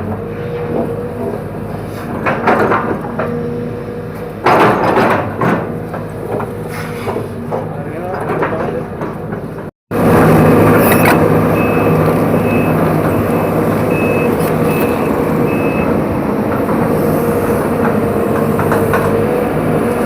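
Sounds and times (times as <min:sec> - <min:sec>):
diesel engine under load: 0:00.0 - 0:20.0
travel alarm beeping: 0:10.8 - 0:16.0.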